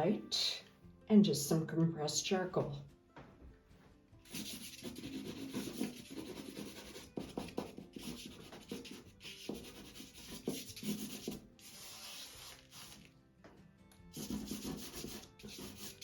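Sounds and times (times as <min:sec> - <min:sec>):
charcoal scratching on paper: 0:04.2 - 0:13.1, 0:14.1 - 0:16.0.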